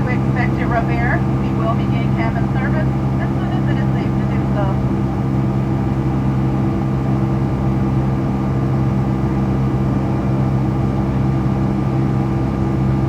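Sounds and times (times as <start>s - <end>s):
constant low hum: 0.0s - 13.0s
jet engines droning: 0.0s - 13.0s.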